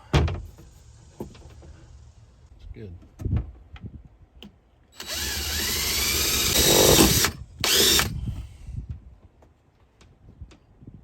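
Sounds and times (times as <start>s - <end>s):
power drill running under load: 5.0s - 8.1s.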